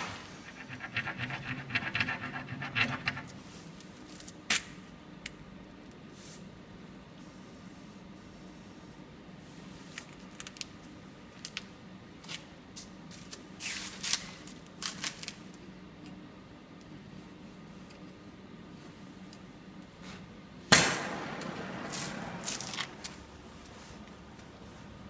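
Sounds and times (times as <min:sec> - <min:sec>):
short hissing bursts: 0:06.1 - 0:06.5
low steady hum: 0:14.4 - 0:25.0.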